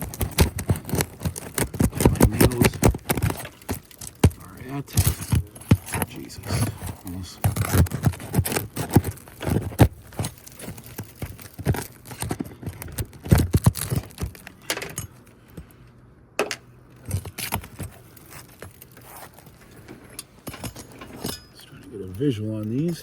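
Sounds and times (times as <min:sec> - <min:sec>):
pry tool scraping shingles: 0:00.0 - 0:14.6.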